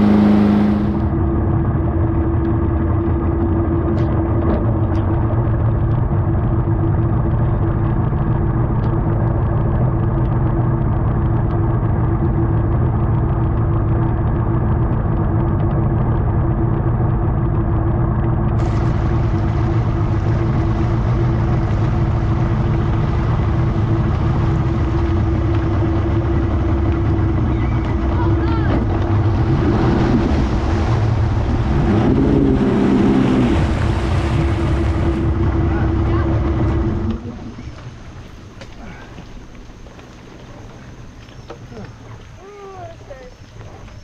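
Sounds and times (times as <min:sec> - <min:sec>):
outboard motor droning: 0:00.0 - 0:44.0.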